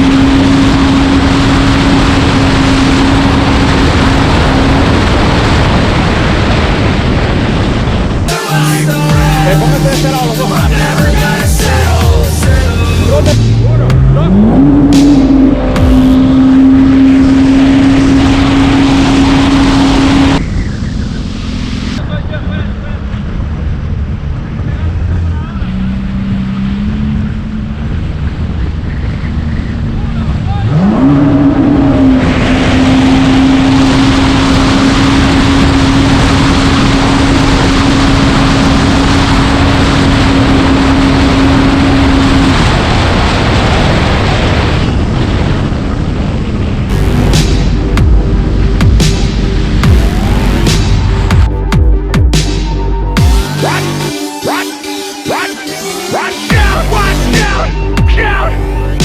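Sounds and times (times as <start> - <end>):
jet ski engine at high revs: 0.0 - 21.8, 22.8 - 51.4
wind: 12.8 - 51.3.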